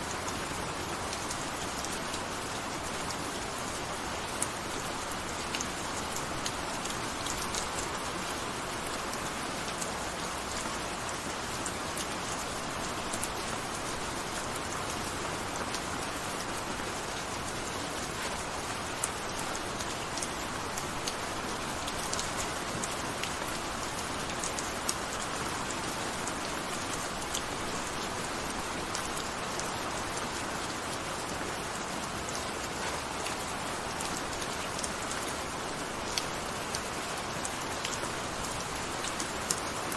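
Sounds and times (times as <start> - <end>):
gentle rain patter: 0.0 - 39.9.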